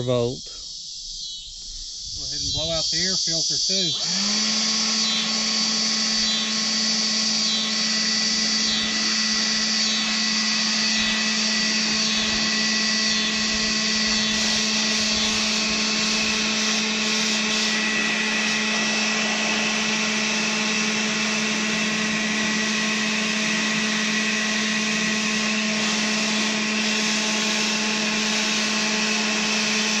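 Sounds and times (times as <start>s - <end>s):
leaf blower motor whine: 0.0s - 30.0s
rushing air: 10.1s - 27.7s.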